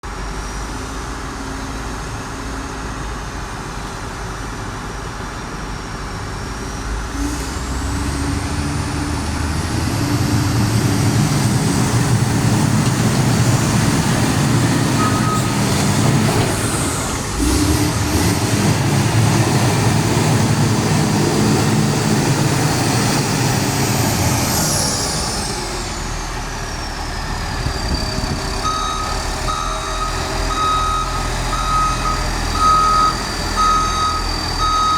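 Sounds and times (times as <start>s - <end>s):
diesel engine running: 0.1s - 34.9s
reversing beeps: 14.8s - 15.6s, 27.8s - 34.9s
short beep: 15.0s - 15.6s.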